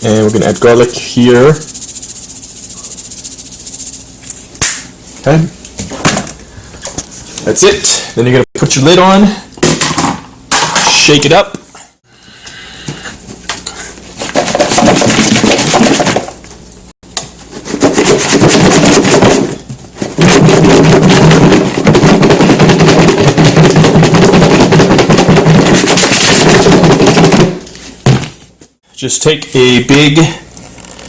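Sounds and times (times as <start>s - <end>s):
food rattling in shaken container: 0.0s - 4.2s, 14.3s - 16.4s, 20.2s - 27.6s.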